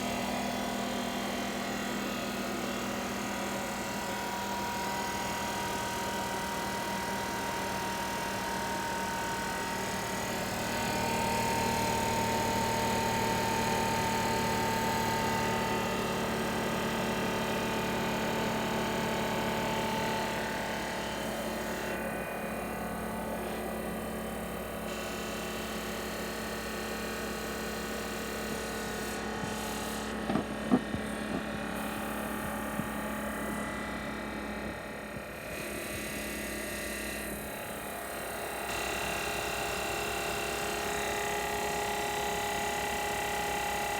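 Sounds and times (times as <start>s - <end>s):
air compressor running: 0.0s - 43.9s.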